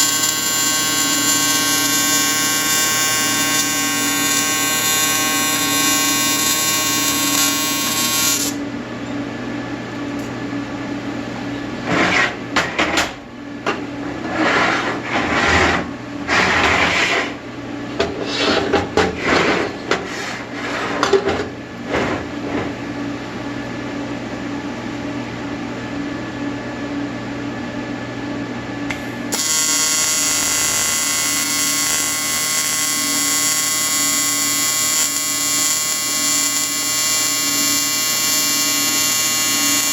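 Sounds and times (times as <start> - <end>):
welding arc buzzing: 0.0 - 8.7, 28.9 - 39.9.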